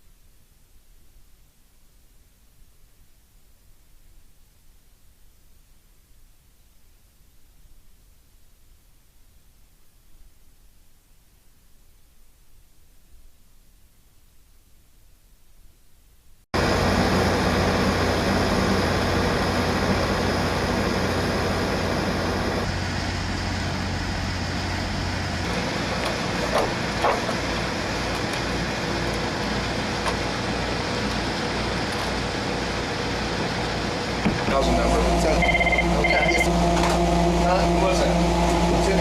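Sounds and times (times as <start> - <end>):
engine running: 16.6 - 39.0.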